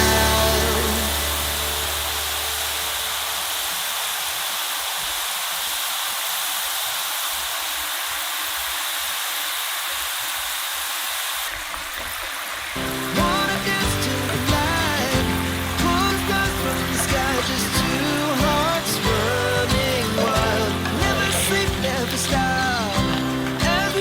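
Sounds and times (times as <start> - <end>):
background music: 0.0 - 2.9, 12.8 - 24.0
potatoes deep-frying in oil: 0.0 - 24.0.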